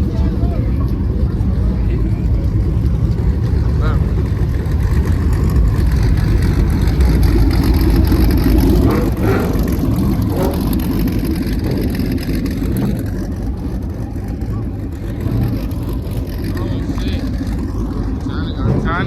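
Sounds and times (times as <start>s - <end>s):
car engine rumbling: 0.0s - 19.0s.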